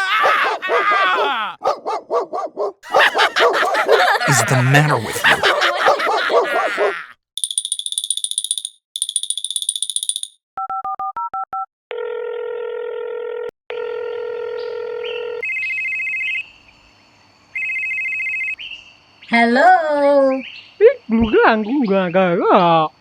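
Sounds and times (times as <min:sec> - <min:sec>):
long steady telephone tones: 0:11.9 - 0:15.5.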